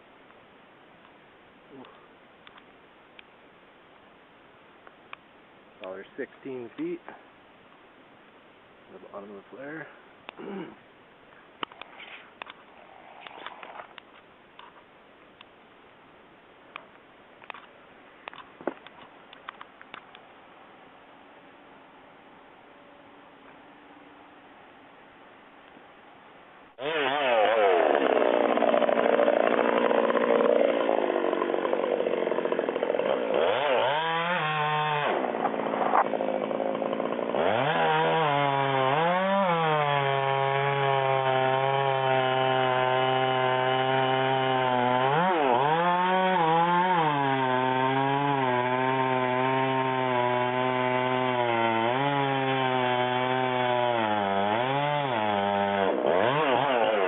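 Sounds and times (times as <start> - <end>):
chainsaw cutting: 26.7 - 57.0.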